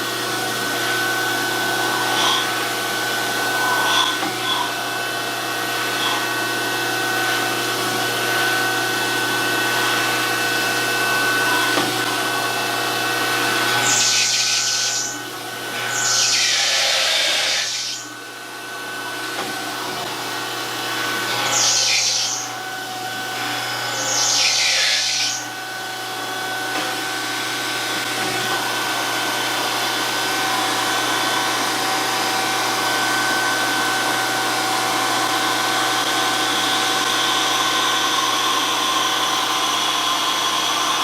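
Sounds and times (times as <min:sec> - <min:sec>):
surface grinder whine: 0:00.0 - 0:41.0
grinding wheel hissing on steel: 0:12.4 - 0:18.4, 0:19.9 - 0:25.6.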